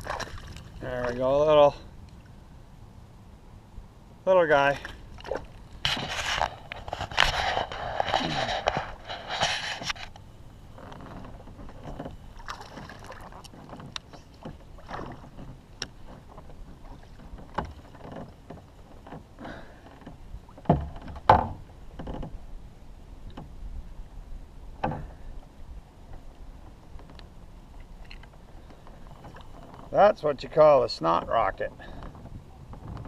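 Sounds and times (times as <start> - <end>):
knocks and clicks on a kayak: 10.8 - 22.4, 23.2 - 23.6, 24.8 - 25.3, 30.9 - 33.0.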